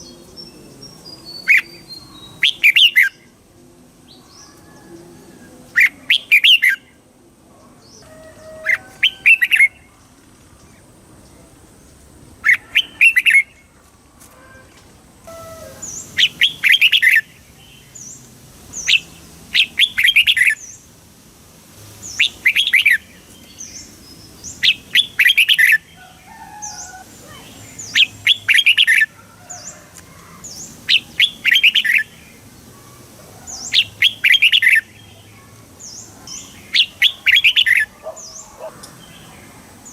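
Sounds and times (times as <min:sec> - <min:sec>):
bird whistled song: 0:01.2 - 0:03.2, 0:05.8 - 0:06.9, 0:12.4 - 0:13.6, 0:15.3 - 0:17.3, 0:22.1 - 0:23.1, 0:24.6 - 0:26.9, 0:27.8 - 0:29.1, 0:30.9 - 0:32.1, 0:33.7 - 0:34.9, 0:36.7 - 0:38.4.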